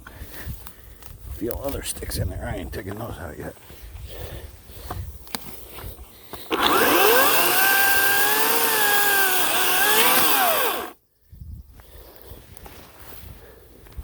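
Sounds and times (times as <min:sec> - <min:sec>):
electric chainsaw whining: 0:06.4 - 0:11.0.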